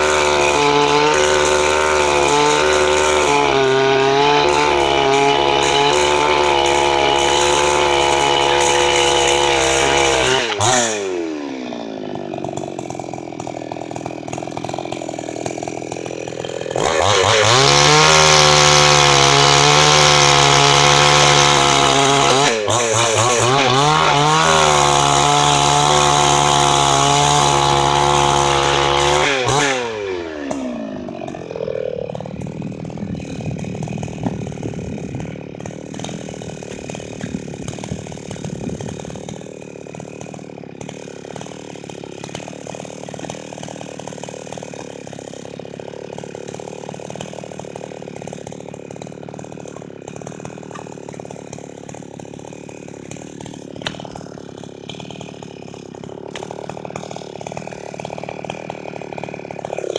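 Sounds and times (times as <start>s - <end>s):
chainsaw running: 0.0s - 59.9s.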